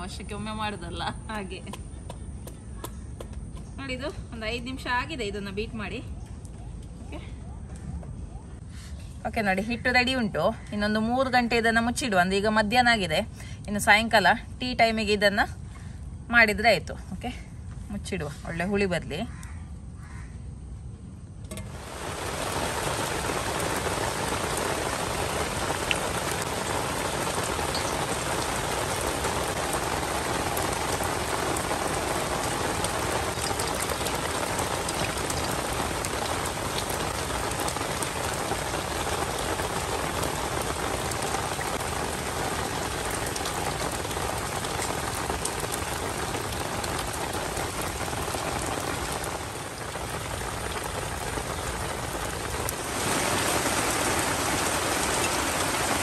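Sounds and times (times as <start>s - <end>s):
heavy rain pouring: 21.5s - 56.0s.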